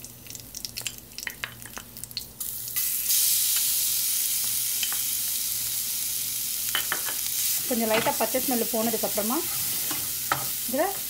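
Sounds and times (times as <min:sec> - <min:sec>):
paste sizzling in hot oil: 0:02.4 - 0:11.0.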